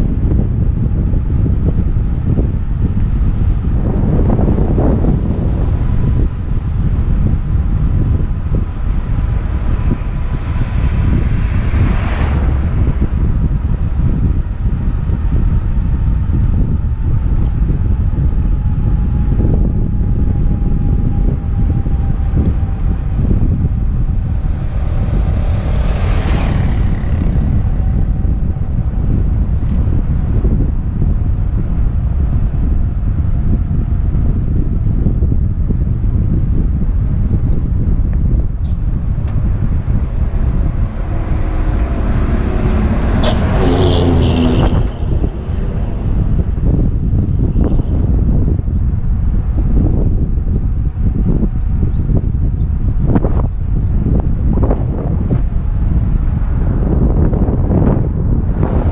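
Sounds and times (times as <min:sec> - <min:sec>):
wind buffeting microphone: 0:00.0 - 0:58.9
vehicle passing: 0:01.7 - 0:18.3, 0:20.4 - 0:33.2, 0:38.2 - 0:50.4, 0:54.4 - 0:58.9.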